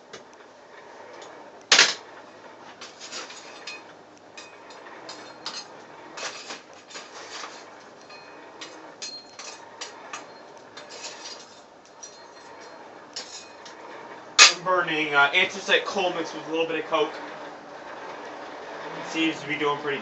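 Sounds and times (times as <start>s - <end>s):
small metal objects clinking: 2.8s - 13.7s.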